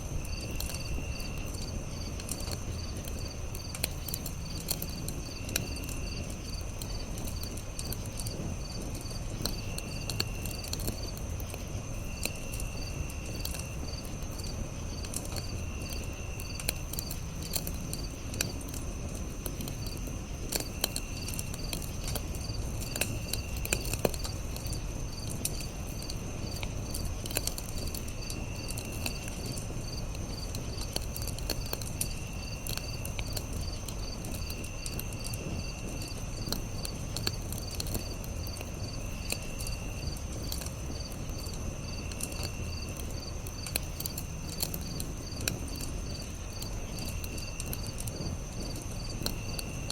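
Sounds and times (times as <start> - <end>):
campfire crackling and popping: 0.0 - 49.9
crickets chirping: 0.0 - 49.9
high insect drone: 0.0 - 49.9.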